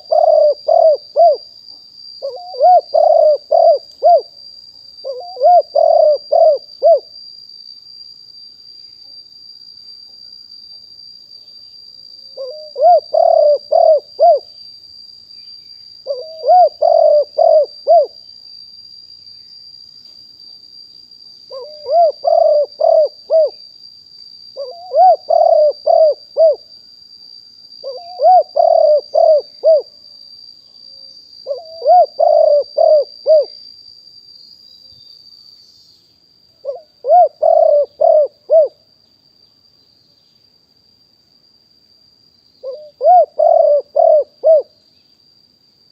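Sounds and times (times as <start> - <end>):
dove cooing: 0.0 - 1.4, 2.2 - 4.3, 5.0 - 7.1, 12.4 - 14.5, 16.1 - 18.2, 21.5 - 23.6, 24.6 - 26.6, 27.8 - 29.9, 31.5 - 33.6, 36.6 - 38.8, 42.6 - 44.7.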